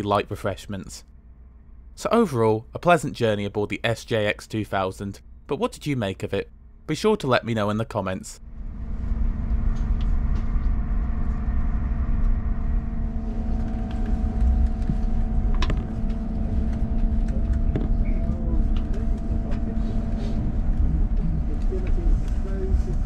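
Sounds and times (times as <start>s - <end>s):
multi-tone hum: 0.0s - 23.0s
train low rumble: 8.4s - 23.0s.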